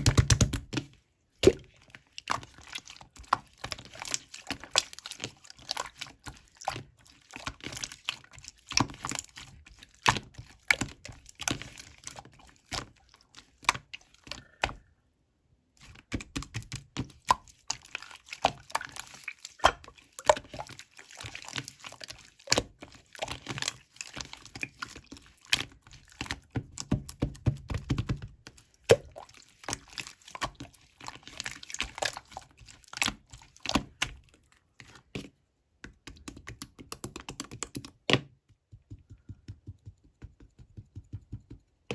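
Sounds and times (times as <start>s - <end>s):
slime squishing wet clicks: 15.9s - 24.8s.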